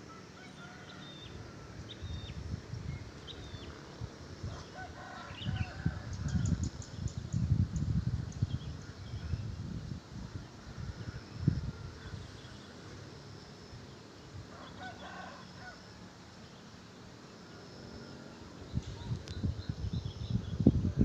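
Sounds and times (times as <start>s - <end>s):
rooster crowing: 0.1s - 1.7s, 4.5s - 6.5s, 14.5s - 16.1s
wind rumble on microphone: 1.3s - 15.0s, 18.4s - 21.0s
wild birds calling: 4.5s - 6.9s, 14.5s - 15.8s.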